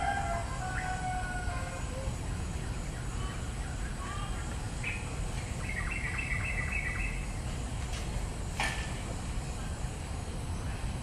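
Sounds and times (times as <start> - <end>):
birds calling: 0.0 - 7.8
steady low rumble: 1.6 - 11.0.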